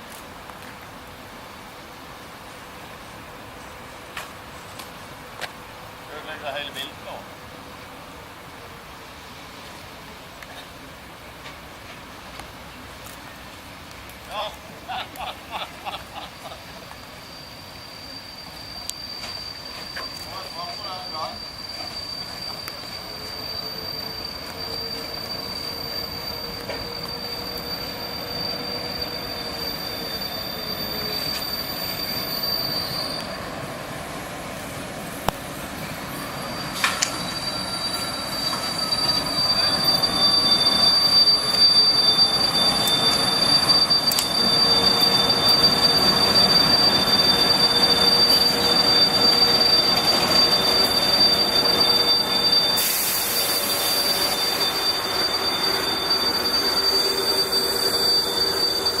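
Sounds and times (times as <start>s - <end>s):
rumble of rails: 0.0s - 59.0s
train wheels squealing: 6.1s - 7.2s, 14.3s - 59.0s.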